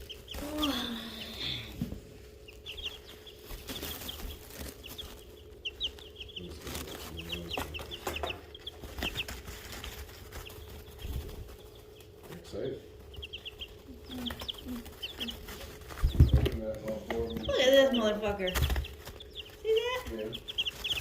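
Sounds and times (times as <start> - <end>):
chicks peeping: 0.0 - 21.0
chicks scratching in litter: 0.0 - 21.0.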